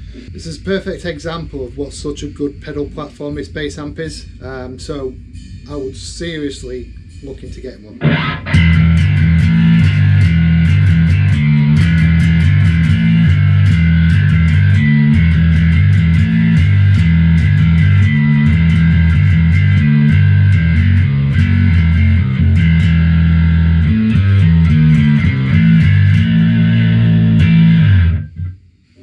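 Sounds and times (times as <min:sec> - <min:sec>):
distorted bass guitar riff: 0:07.9 - 0:29.0.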